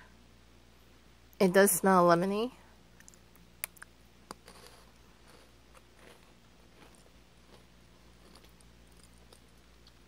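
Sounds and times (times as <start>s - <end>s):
person crunching a biscuit stick: 3.0s - 10.0s.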